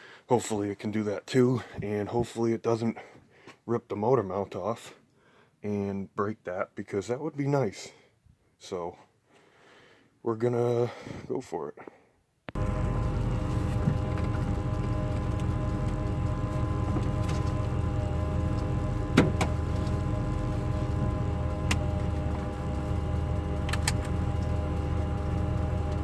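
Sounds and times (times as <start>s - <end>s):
car engine running: 12.6s - 26.0s
sharp clicks: 21.6s - 22.4s, 23.6s - 24.5s.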